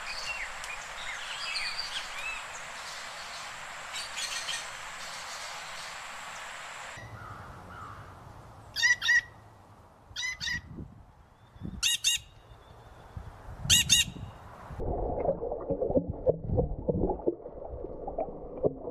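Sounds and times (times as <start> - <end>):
background hiss: 0.0 - 8.7.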